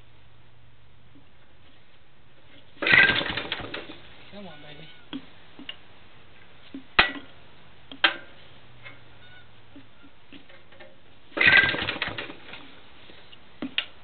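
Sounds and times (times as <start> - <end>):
engine turning over without firing: 2.8 - 4.0, 11.3 - 12.8.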